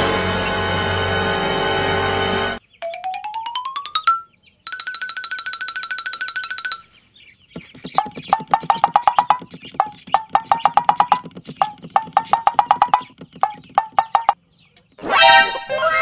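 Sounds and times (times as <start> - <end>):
short rising chirping tones: 0.0 - 7.0
fast ringing rattle: 2.8 - 6.9
rapid even clicking: 7.6 - 14.4.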